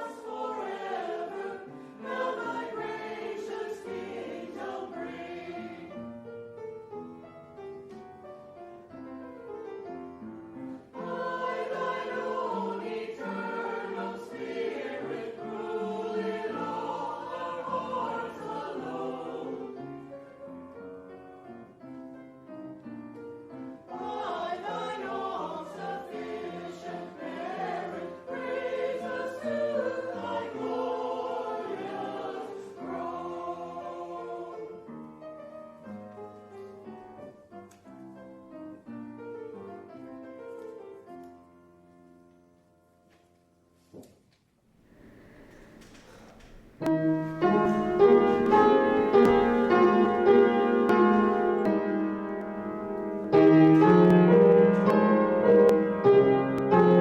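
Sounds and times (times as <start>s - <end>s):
choir singing: 0.0s - 6.6s, 10.2s - 21.8s, 23.5s - 37.0s, 45.0s - 57.0s.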